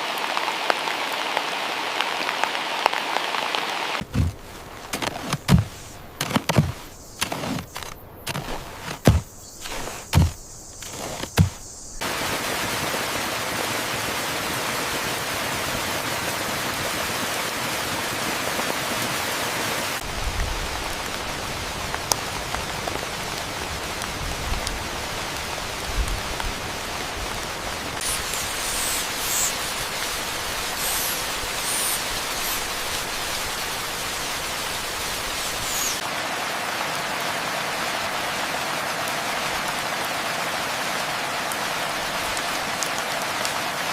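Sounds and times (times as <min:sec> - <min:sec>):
heavy rain: 0:00.0 - 0:43.9
faint high chirps: 0:28.0 - 0:32.9, 0:35.2 - 0:36.0.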